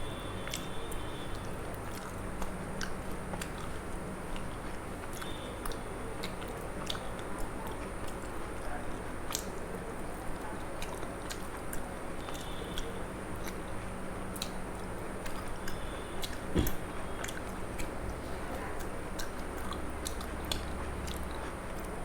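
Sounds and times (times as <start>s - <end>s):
dull thump: 16.5s - 16.8s
person chewing: 18.8s - 22.0s.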